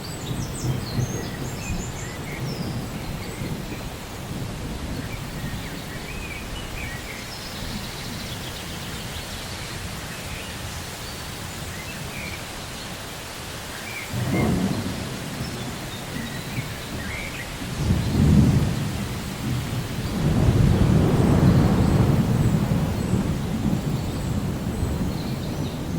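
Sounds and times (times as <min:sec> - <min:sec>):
steady rain: 0:00.0 - 0:25.9
deep thunder rolls: 0:14.2 - 0:25.9.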